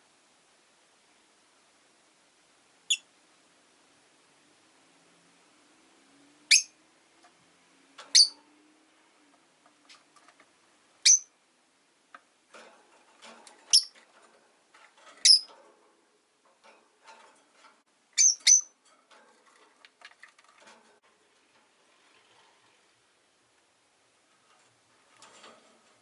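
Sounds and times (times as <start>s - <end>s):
lovebirds chirping: 6.5s - 6.8s, 8.1s - 8.4s, 11.0s - 11.3s, 13.7s - 14.0s, 15.2s - 15.5s, 18.2s - 18.8s
faint clicking and rustling: 7.0s - 11.0s, 11.7s - 18.0s, 18.7s - 26.0s.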